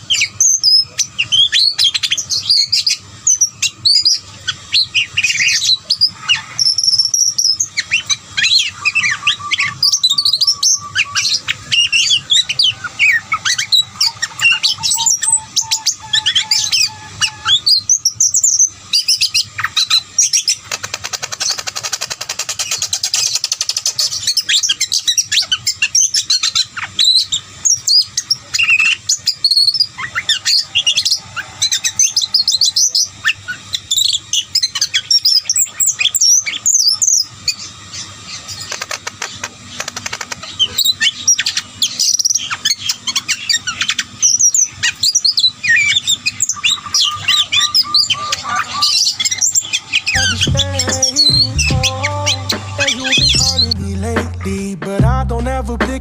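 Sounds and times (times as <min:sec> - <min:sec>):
small birds chirping: 0:00.0 - 0:53.8.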